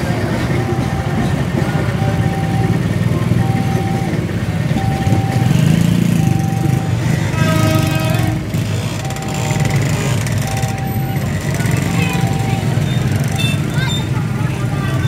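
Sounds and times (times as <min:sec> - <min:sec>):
train coaches rumbling past: 0:00.0 - 0:15.0
level-crossing warning alarm: 0:00.4 - 0:07.1, 0:09.0 - 0:13.5.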